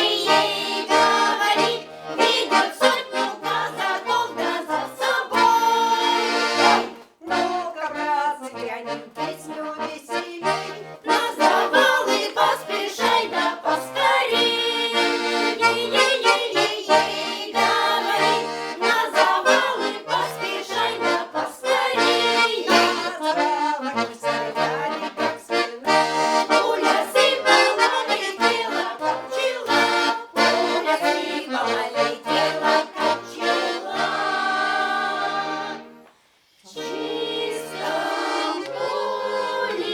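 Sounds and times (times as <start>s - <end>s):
accordion folk melody: 0.0s - 39.9s.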